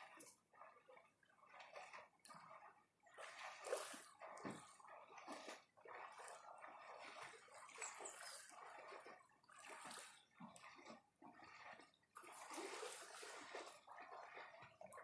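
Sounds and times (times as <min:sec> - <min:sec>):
small waves lapping on shore: 0:03.1 - 0:15.0.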